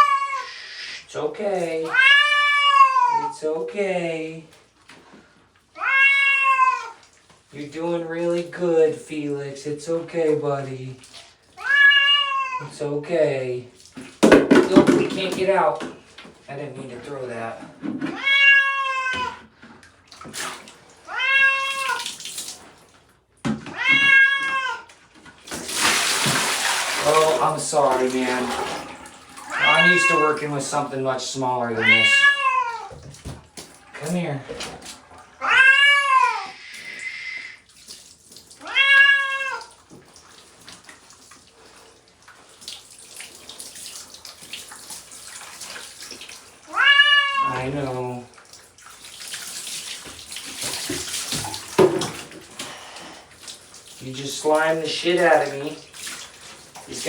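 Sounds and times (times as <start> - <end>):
cat meowing in distress: 0.0 - 0.9, 1.9 - 3.3, 5.8 - 7.0, 11.6 - 12.7, 18.1 - 19.4, 21.1 - 22.0, 23.7 - 24.9, 29.4 - 30.4, 31.8 - 33.0, 35.4 - 37.6, 38.6 - 39.7, 46.7 - 47.6
water running and splashing: 0.4 - 57.0.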